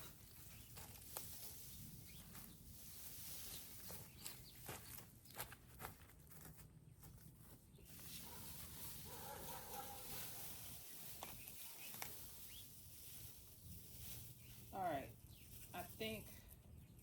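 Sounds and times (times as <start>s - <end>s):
shade cloth rustling: 7.9s - 14.7s.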